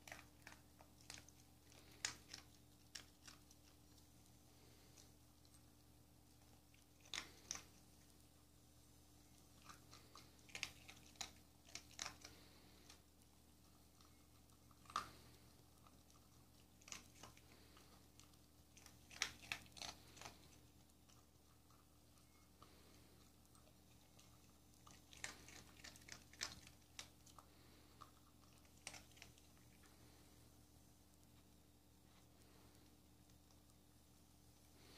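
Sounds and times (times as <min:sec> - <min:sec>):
dog crunching dry kibble: 0:00.0 - 0:08.2, 0:09.5 - 0:13.0, 0:13.6 - 0:30.0.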